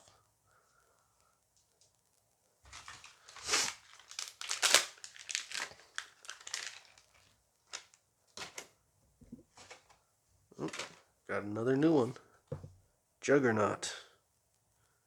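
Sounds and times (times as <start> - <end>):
wrapper crinkling and rustling: 2.7 - 8.7.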